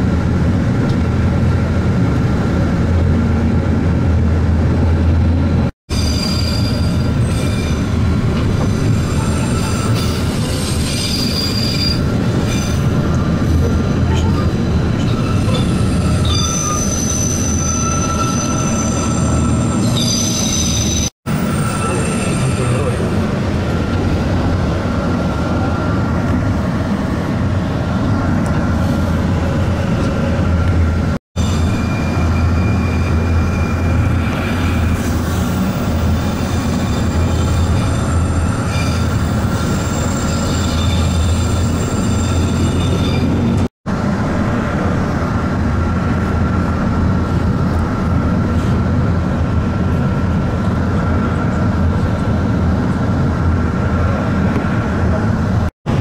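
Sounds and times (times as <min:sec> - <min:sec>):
railcar running rumble: 0:00.0 - 0:56.0
high wheel squeal: 0:05.9 - 0:08.0, 0:08.7 - 0:12.9, 0:15.0 - 0:23.1, 0:31.4 - 0:43.7.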